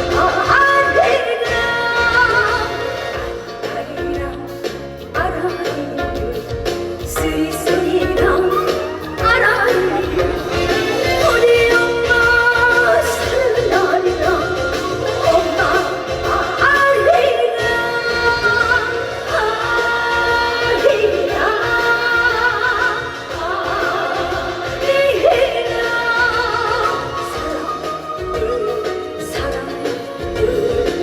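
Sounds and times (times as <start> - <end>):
instrumental accompaniment: 0.0 - 31.0
woman singing with vibrato: 0.0 - 31.0.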